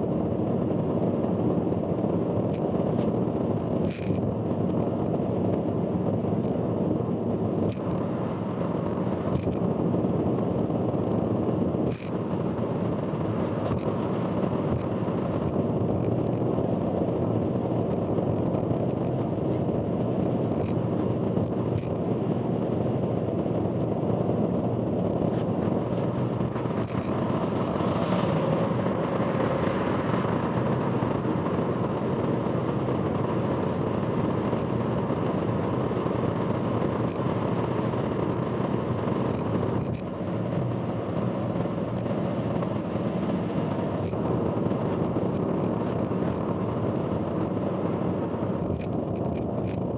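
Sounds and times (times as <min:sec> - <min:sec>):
road noise of driving car: 0:00.0 - 0:49.9.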